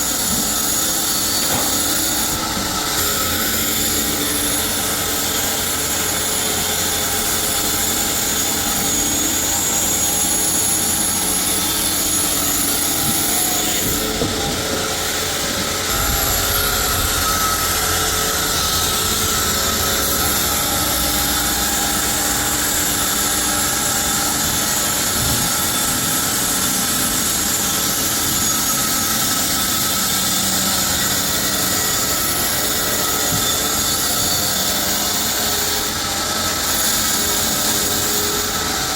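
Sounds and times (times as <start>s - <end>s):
high-pitched whining tones: 0.0s - 29.5s
sawmill machinery running: 0.0s - 38.9s.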